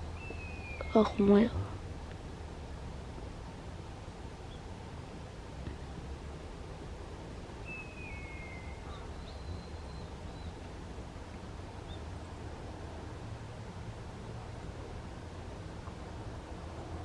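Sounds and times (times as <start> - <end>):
steady low rumble: 0.0 - 7.7.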